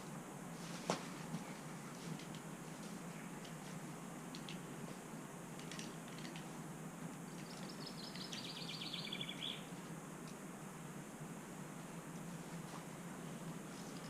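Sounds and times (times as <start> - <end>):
steady background hiss: 0.0 - 14.0
songbird trill: 7.3 - 9.8.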